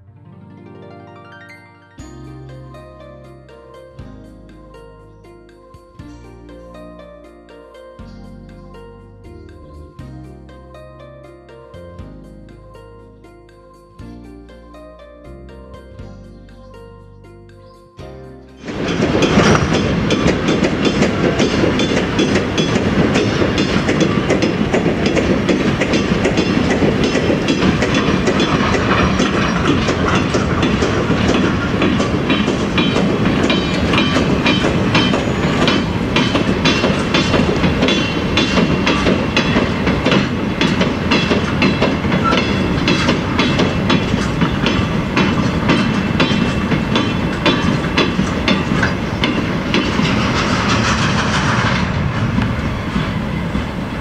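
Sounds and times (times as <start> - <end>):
freight train wheels clattering: 18.6 - 54.0.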